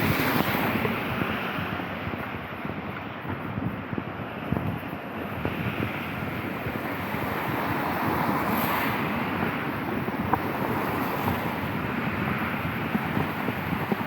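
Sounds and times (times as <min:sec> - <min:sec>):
vehicle passing on wet road: 0:00.0 - 0:02.3, 0:05.4 - 0:14.0
rain on wet street: 0:00.0 - 0:14.0.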